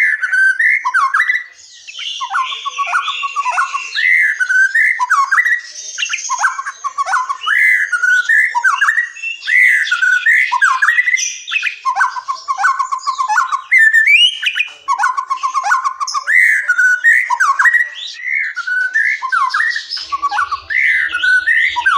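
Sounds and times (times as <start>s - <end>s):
songbird singing: 0.0s - 21.9s.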